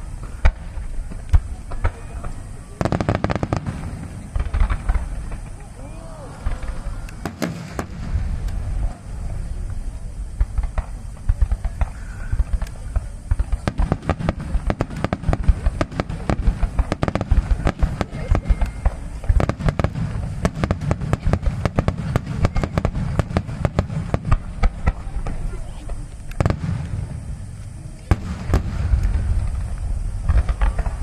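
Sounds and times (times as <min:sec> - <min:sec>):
fireworks cracking and banging: 0:00.0 - 0:31.0
deep rolling rumble: 0:03.5 - 0:11.6, 0:19.0 - 0:31.0.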